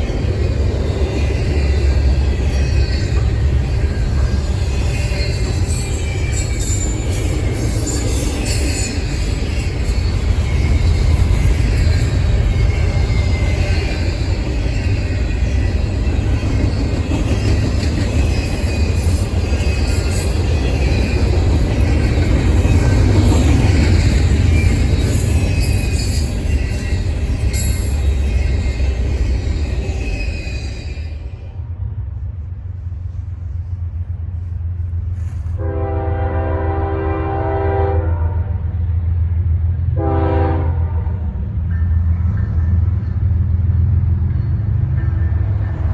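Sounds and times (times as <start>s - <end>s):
train passing rumble: 0.0s - 45.9s
locomotive air horn blasts: 35.5s - 38.6s, 40.0s - 41.2s.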